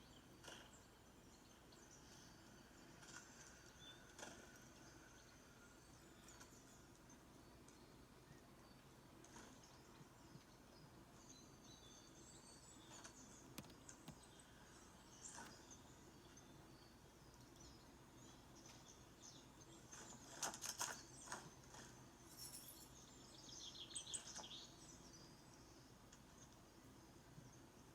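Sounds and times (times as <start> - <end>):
sharp clicks: 13.5 - 14.2.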